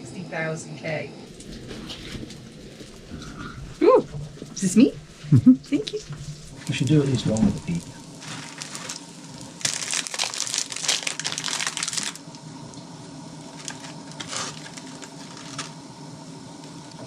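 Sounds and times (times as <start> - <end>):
plastic wrapping crinkling: 1.3 - 12.4, 13.4 - 15.8.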